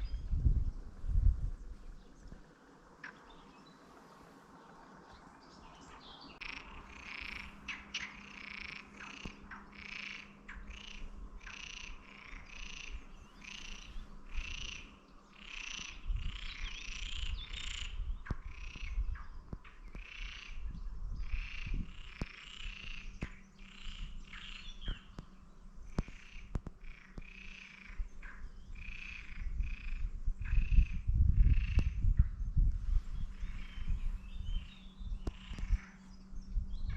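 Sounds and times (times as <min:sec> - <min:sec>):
low rumble: 0:00.0 - 0:20.0, 0:29.4 - 0:36.9
frogs calling: 0:03.0 - 0:03.9, 0:05.5 - 0:32.0, 0:33.3 - 0:36.3.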